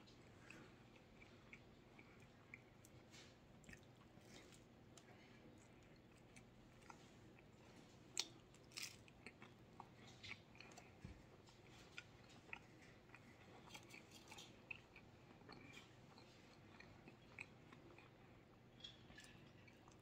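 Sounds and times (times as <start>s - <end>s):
faint chewing and biting: 0.0s - 20.0s.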